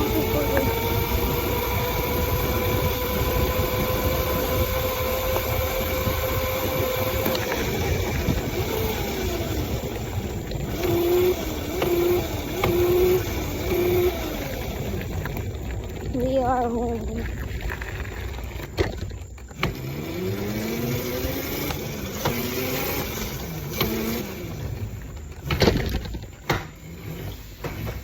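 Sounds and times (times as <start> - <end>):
wind rumble on microphone: 0.0 - 19.4
motorbike engine whining: 0.0 - 28.0.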